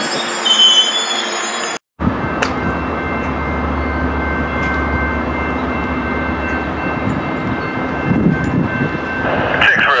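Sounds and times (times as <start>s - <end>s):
train rumble: 2.0s - 10.0s.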